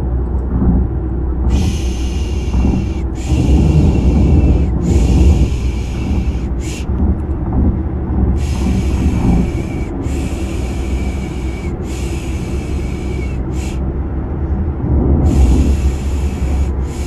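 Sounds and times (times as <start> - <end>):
car engine and road rumble: 0.0 - 17.0
person shushing: 1.5 - 6.9.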